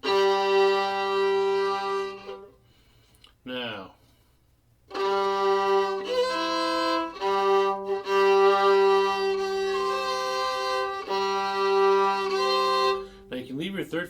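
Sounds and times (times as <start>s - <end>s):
fiddle playing double stops: 0.0s - 2.6s, 4.9s - 13.4s.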